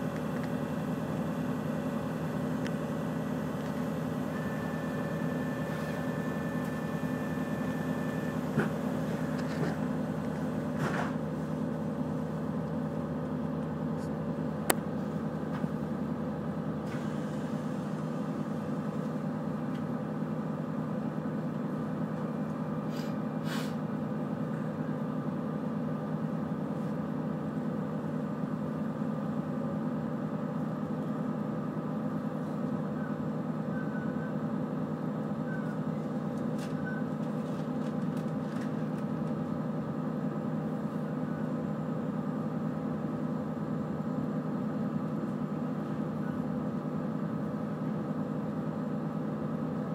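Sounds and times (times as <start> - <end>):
train carriage hum and rumble: 0.0 - 49.9.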